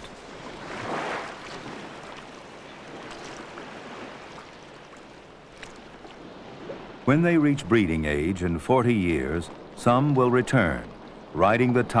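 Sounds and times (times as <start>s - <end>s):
sea water washing: 0.0s - 12.0s.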